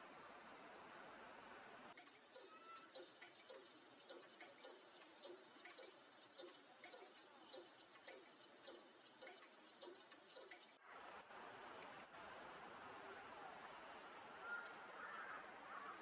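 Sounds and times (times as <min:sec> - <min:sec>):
faint regular ticking: 0:01.9 - 0:10.8.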